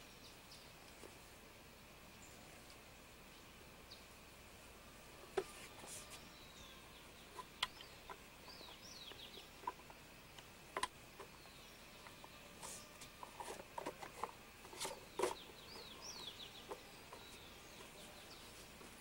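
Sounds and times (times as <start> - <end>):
small birds chirping: 0.0 - 1.3, 2.0 - 4.4, 5.0 - 19.0.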